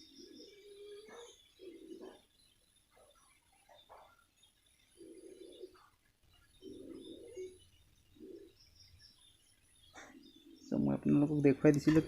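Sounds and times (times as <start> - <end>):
dove cooing: 0.0 - 2.3, 4.9 - 6.0, 6.6 - 8.6
small birds chirping: 0.0 - 12.0.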